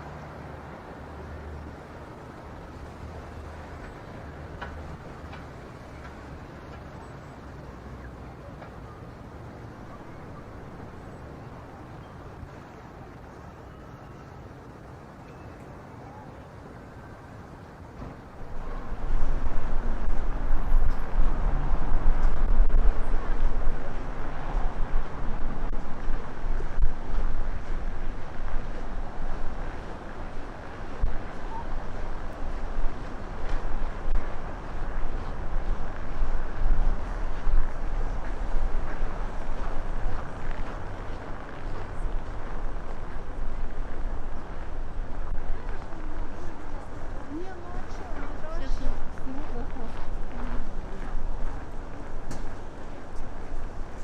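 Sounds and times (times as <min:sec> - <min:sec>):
wind buffeting microphone: 0:17.8 - 0:54.0.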